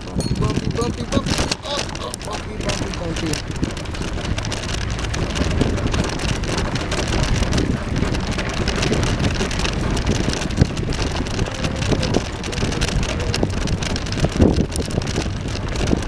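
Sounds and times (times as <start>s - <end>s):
bicycle tyres crunching on path: 0.0s - 16.0s
rattles: 0.0s - 16.0s
wind on microphone: 0.0s - 16.0s.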